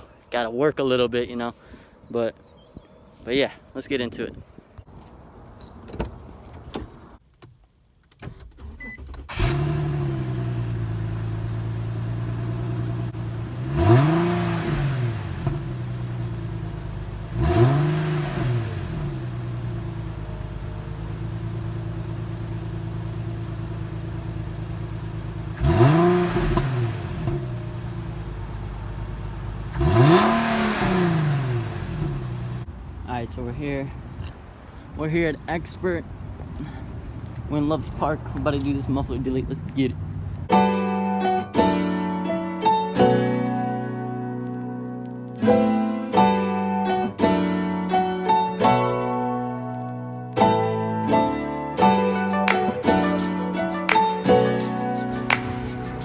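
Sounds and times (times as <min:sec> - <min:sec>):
car engine cold start: 0:08.2 - 0:32.7, 0:55.1 - 0:56.0
car engine idling and revving: 0:09.3 - 0:33.0, 0:36.1 - 0:40.5, 0:47.0 - 0:48.4, 0:55.0 - 0:56.0.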